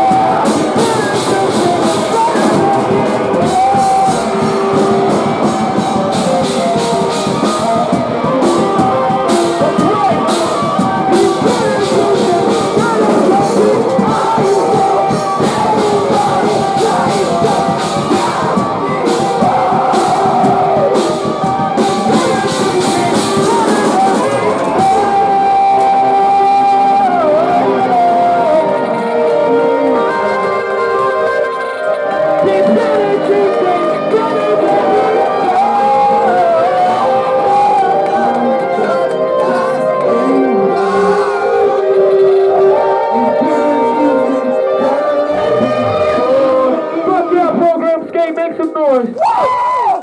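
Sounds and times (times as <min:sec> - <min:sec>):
drum and cymbal hits: 0:00.0 - 0:28.7
band playing live: 0:00.0 - 0:50.0
vocals: 0:00.0 - 0:50.0.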